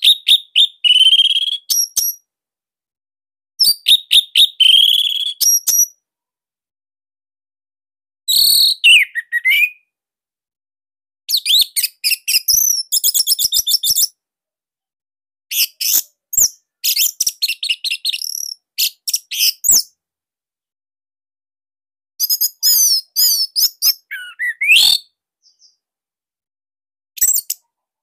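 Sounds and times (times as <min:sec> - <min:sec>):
thrush singing whistled phrases: 0:00.0 - 0:02.2, 0:03.6 - 0:06.0, 0:08.3 - 0:09.9, 0:11.3 - 0:14.1, 0:15.5 - 0:19.9, 0:22.2 - 0:25.8.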